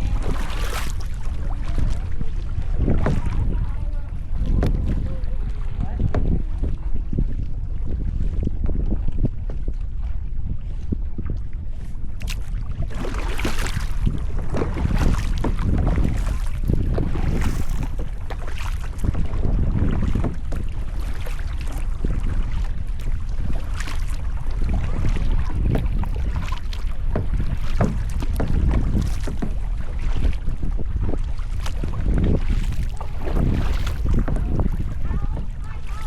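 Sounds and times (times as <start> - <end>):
wind rumbling on microphone: 0.0 - 36.0
water splashing and dripping: 32.5 - 36.0.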